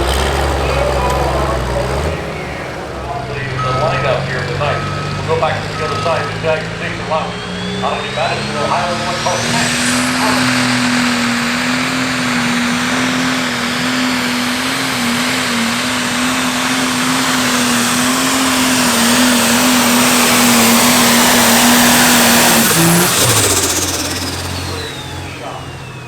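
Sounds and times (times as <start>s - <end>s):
engine idling: 0.0s - 26.0s
tractor engine at full throttle: 0.0s - 26.0s
turbo whistle: 3.1s - 11.4s, 16.3s - 25.6s.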